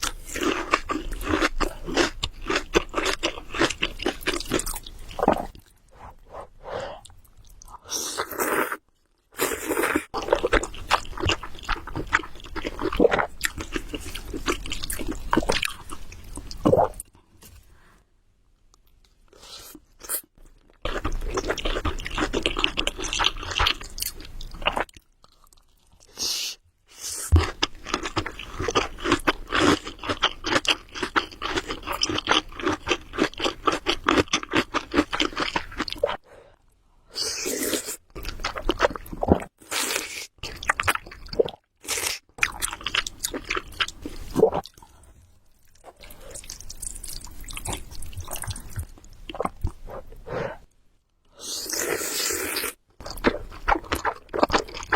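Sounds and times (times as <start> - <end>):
wet chewing mouth sounds: 45.7 - 50.7, 53.0 - 54.9.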